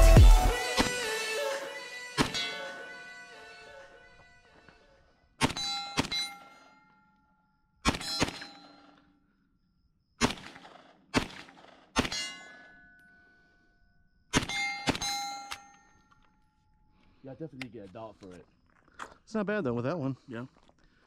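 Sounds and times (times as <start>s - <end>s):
rifle shots: 7.8s - 8.9s, 10.2s - 12.4s.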